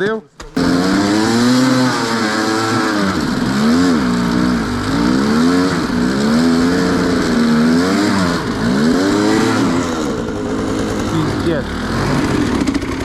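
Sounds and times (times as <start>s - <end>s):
motorcycle engine revving: 0.5s - 13.0s.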